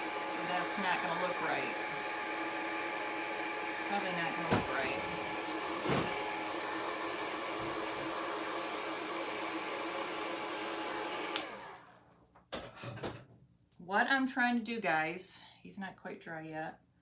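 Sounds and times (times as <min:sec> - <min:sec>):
hot-air dryer running: 0:00.0 - 0:12.0.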